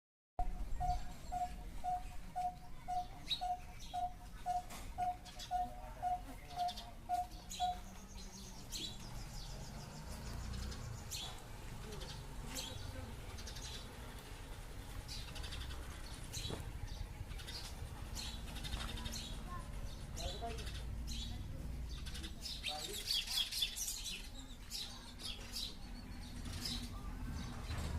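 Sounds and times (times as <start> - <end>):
bird repeating clear note: 0.4 - 7.9.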